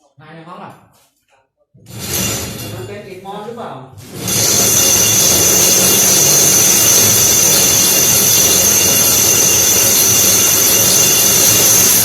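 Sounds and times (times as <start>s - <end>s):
power drill boring into masonry: 4.1s - 12.0s.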